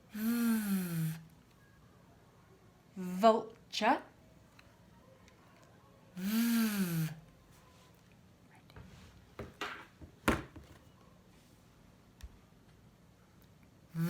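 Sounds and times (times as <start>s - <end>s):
woman drawing out a word: 0.2s - 1.2s, 6.2s - 7.2s.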